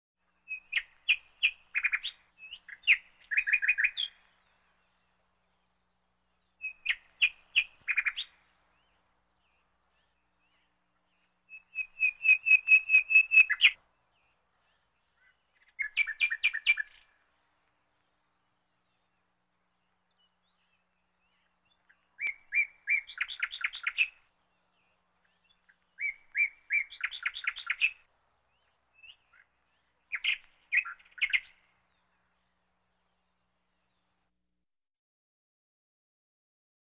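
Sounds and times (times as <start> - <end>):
bird calling sharp notes: 11.5 - 13.8.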